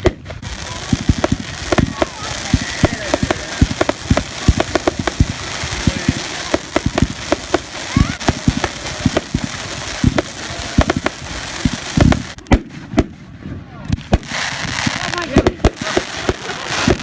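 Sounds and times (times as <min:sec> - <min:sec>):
continuous crackling: 0:00.0 - 0:13.2, 0:13.8 - 0:17.0
fireworks bangs: 0:00.0 - 0:17.0.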